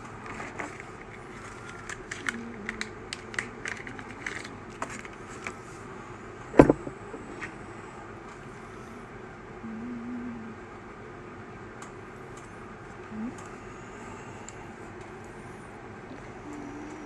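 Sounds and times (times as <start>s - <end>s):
sharp knock: 6.6s - 7.2s.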